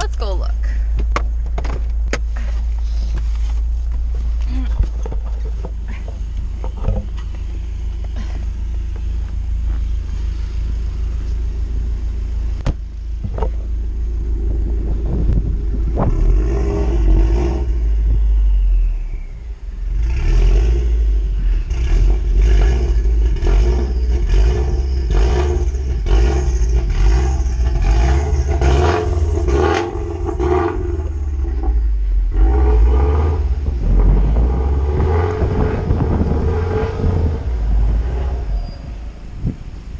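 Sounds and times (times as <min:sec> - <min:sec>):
car engine revving: 0:01.3 - 0:39.9
tires spinning in snow: 0:14.3 - 0:39.7.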